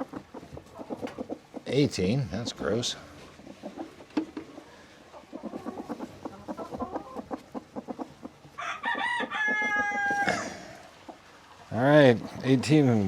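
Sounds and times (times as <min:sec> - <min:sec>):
chickens clucking: 0:00.0 - 0:13.0
rooster crowing: 0:08.6 - 0:10.9.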